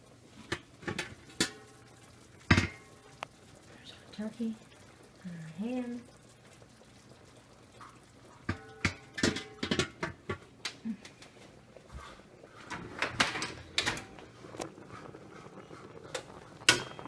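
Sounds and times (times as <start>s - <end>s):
pots and dishes clattering: 0.4s - 3.2s, 7.8s - 14.6s, 15.5s - 17.0s.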